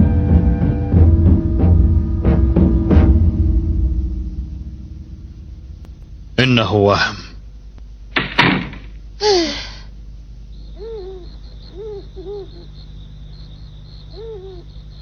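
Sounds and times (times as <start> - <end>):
insect trill: 2.5 - 15.0
cartoon door thump: 8.2 - 9.0
rising and falling animal calls: 10.6 - 15.0.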